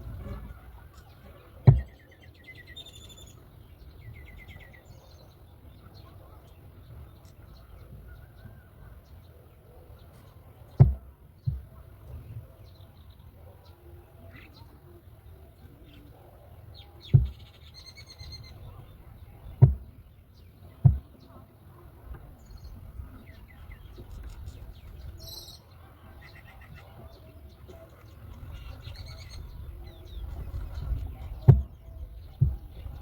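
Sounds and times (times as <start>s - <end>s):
birds chirping: 0.0s - 33.0s
sharp low thumps: 10.8s - 11.8s, 17.1s - 17.4s, 19.5s - 20.0s, 20.8s - 21.2s, 31.0s - 33.0s.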